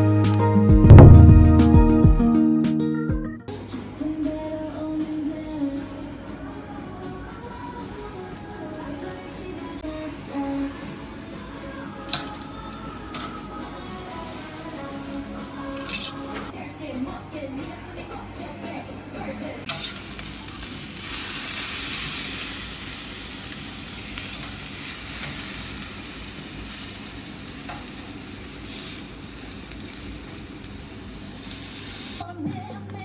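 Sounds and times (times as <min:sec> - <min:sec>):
food sizzling: 0:07.5 - 0:09.9, 0:11.3 - 0:16.5, 0:19.7 - 0:32.3.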